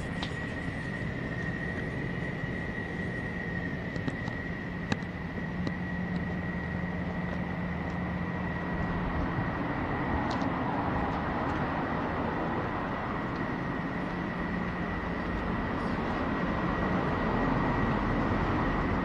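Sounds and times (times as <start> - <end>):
faint clicks: 3.8 - 6.4.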